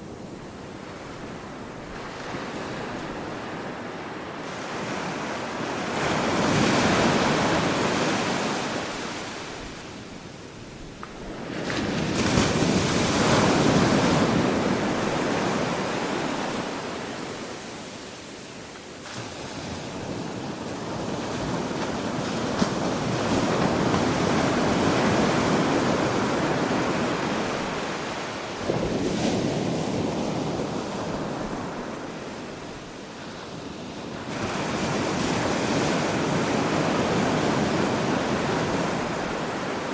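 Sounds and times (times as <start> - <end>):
ocean surf breaking: 0.8 - 9.9.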